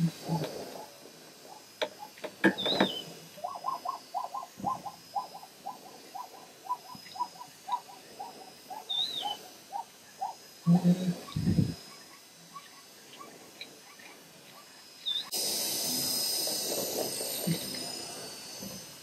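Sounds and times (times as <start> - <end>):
high bird chirp: 2.6 - 5.5, 8.7 - 10.4, 15.0 - 15.3.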